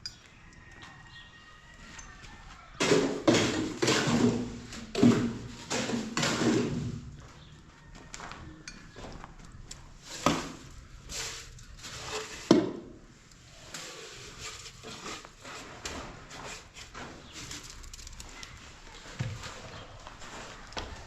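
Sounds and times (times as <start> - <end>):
hard objects knocking and clattering: 2.8 - 7.2.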